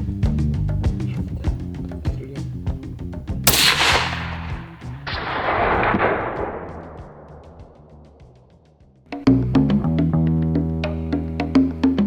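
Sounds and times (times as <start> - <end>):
gunshots with rolling echo: 3.5 - 7.8.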